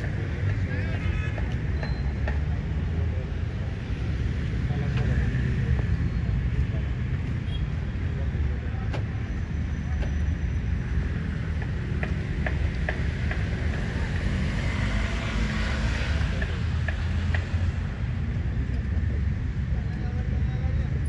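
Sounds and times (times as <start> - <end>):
motor vehicle rumble: 0.0 - 21.0.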